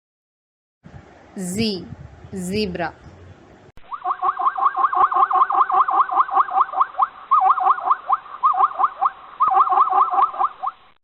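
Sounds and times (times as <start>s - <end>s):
zebra yelping barks: 3.9s - 10.9s.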